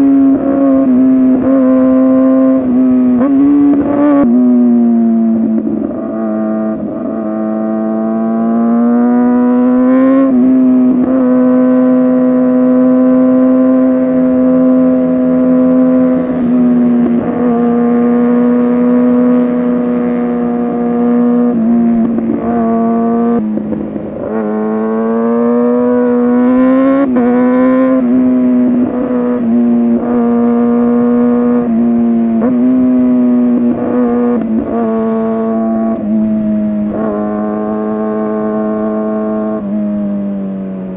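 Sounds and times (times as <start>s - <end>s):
motorcycle engine at high revs: 0.0s - 40.9s.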